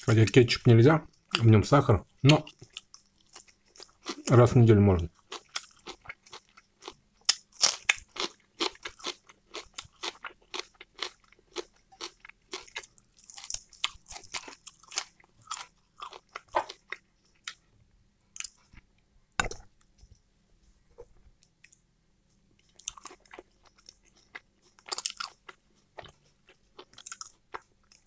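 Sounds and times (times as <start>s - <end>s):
chewing and mouth sounds: 5.1s - 17.6s, 22.6s - 28.0s.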